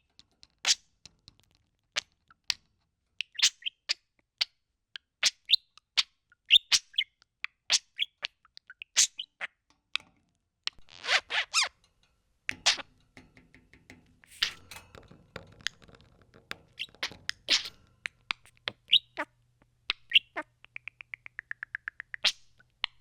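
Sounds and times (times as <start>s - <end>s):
budgerigar chirping and clicking: 2.0s - 10.1s, 10.7s - 11.7s, 12.5s - 14.9s, 16.6s - 23.0s.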